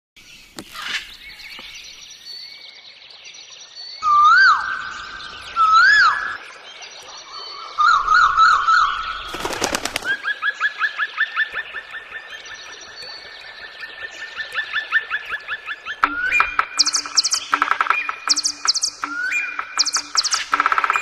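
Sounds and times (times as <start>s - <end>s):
bird whistles and chirps: 4.0s - 6.4s, 15.9s - 21.0s
sharp clicks: 19.8s - 21.0s.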